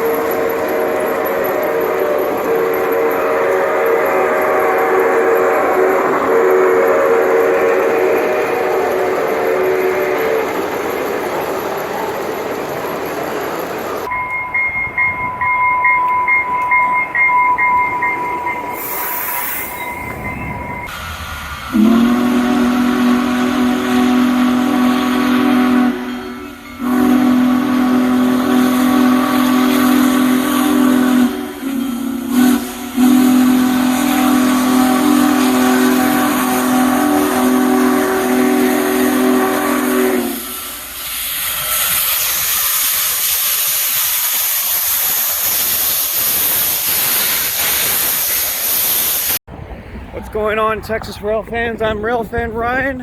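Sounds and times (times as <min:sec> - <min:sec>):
locomotive air horn: 0:00.0 - 0:10.8, 0:21.6 - 0:43.9
crossing bell ringing: 0:00.0 - 0:21.0, 0:25.9 - 0:27.5
train wheel and rail noise: 0:00.0 - 0:53.0.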